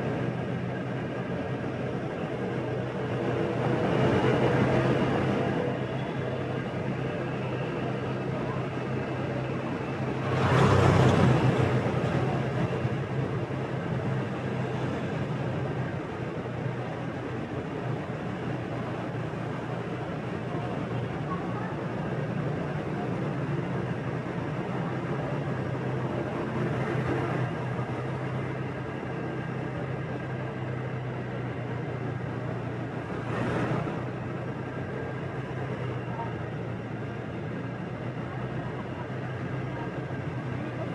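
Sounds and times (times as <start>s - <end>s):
road and traffic noise: 0.0s - 40.9s.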